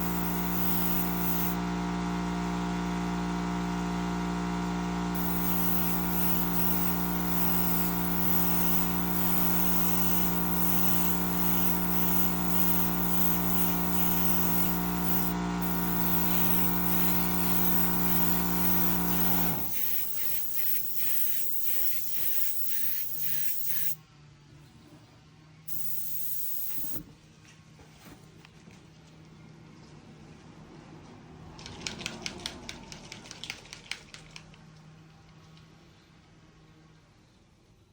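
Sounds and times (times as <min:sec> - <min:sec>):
short hisses of air: 0:00.0 - 0:01.6, 0:05.2 - 0:24.0, 0:25.7 - 0:27.0
airbrush compressor humming: 0:00.0 - 0:24.0, 0:25.7 - 0:27.0.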